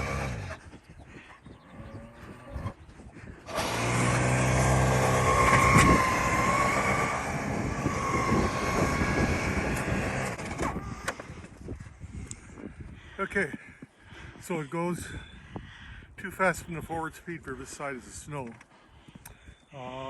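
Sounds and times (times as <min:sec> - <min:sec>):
electric snowblower whining: 0:00.0 - 0:00.6, 0:03.4 - 0:11.4.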